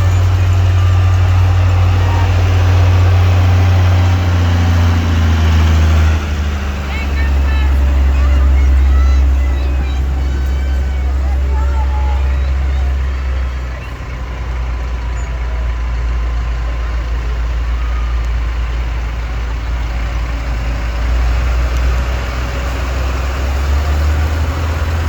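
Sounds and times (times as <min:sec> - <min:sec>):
tractor engines droning: 0:00.0 - 0:25.0.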